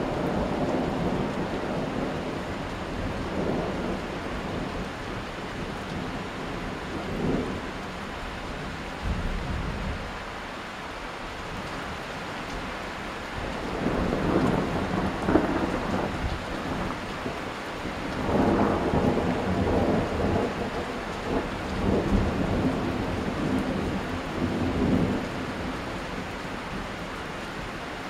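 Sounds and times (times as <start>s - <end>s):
steady rain: 0.0s - 28.0s
thunder rumbling: 13.5s - 25.7s.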